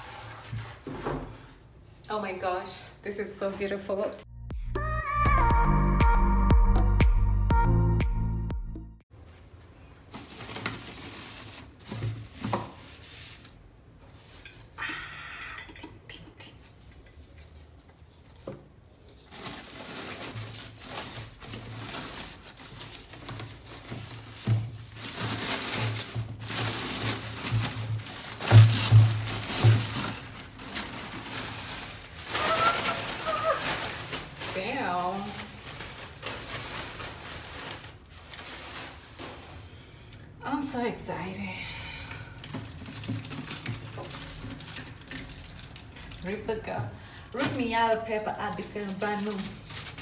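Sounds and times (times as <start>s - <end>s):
background music: 4.3s - 9.0s
packaging rustling: 10.1s - 14.7s, 17.4s - 39.6s, 42.4s - 50.0s.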